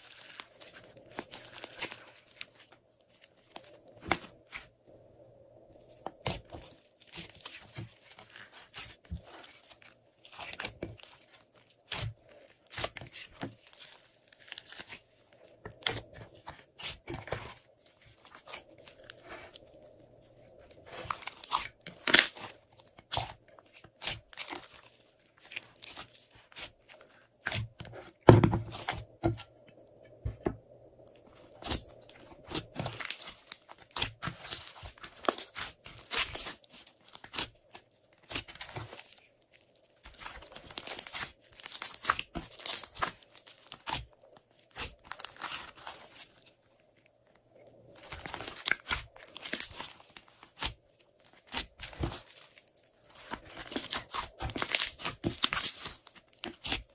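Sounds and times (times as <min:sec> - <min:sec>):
slime squished by hand: 0:31.2 - 0:46.3, 0:48.0 - 0:56.9.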